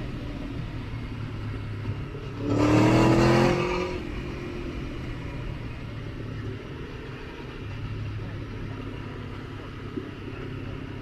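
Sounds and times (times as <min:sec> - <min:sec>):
motorcycle engine revving: 0:02.4 - 0:04.2.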